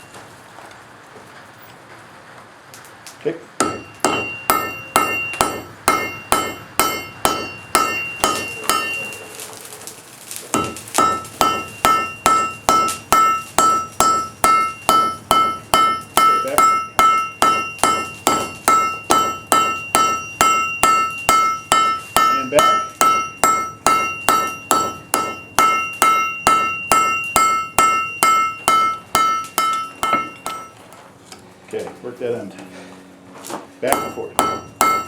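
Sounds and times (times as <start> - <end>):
hammer striking steel on anvil: 3.6 - 9.3, 10.5 - 30.9, 33.8 - 35.0.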